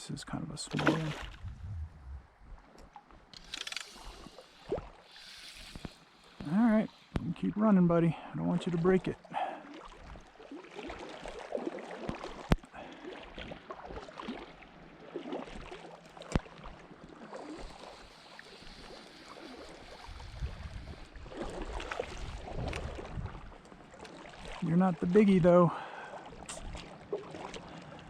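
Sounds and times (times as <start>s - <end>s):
river water running: 0.5s - 28.0s
low rumble: 1.2s - 2.6s
sharp clicks: 3.3s - 4.2s.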